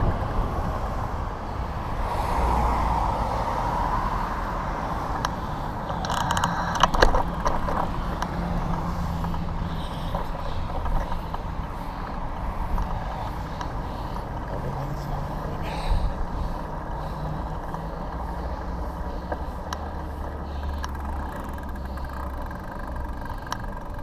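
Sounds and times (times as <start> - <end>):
traffic engine and road rumble: 0.0 - 24.0.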